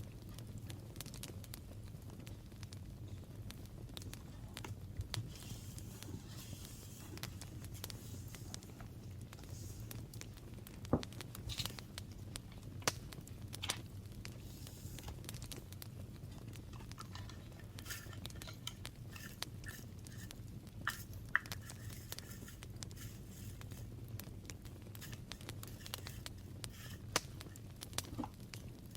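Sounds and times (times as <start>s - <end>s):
low steady hum: 0.0s - 28.9s
paper rustling and scratching: 4.6s - 10.2s, 16.7s - 23.9s, 24.7s - 28.3s.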